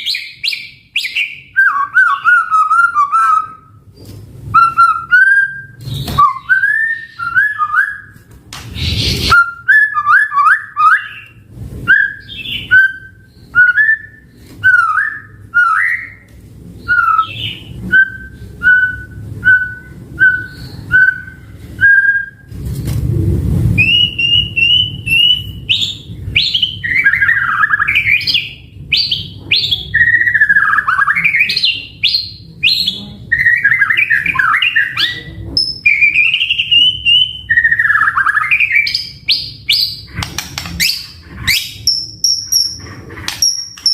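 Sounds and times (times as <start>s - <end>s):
bird whistling and warbling: 0.0s - 3.8s, 4.5s - 22.5s, 23.8s - 40.2s, 40.8s - 43.9s
low rushing noise: 22.4s - 25.2s.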